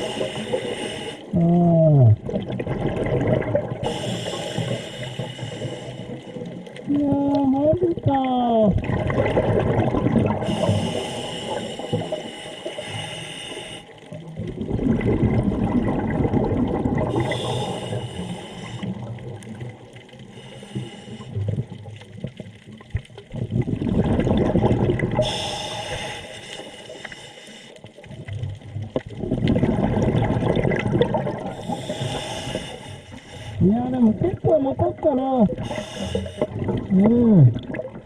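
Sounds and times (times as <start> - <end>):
regulator inhale hiss: 0.0 - 1.3, 3.8 - 6.4, 10.4 - 14.0, 17.2 - 18.9, 20.3 - 21.4, 25.2 - 27.8, 31.6 - 33.6, 35.6 - 36.5
exhaled bubbles rushing: 0.0 - 4.8, 6.0 - 12.3, 14.1 - 20.3, 21.3 - 25.5, 27.9 - 32.8, 33.5 - 38.0.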